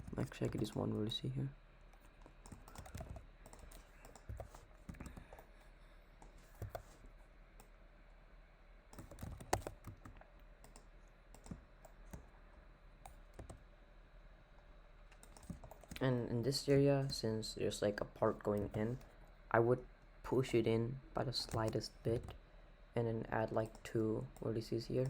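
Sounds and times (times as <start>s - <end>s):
keyboard and mouse clicks: 0.0s - 1.1s, 1.9s - 5.5s, 6.2s - 7.7s, 8.9s - 12.2s, 15.1s - 16.1s.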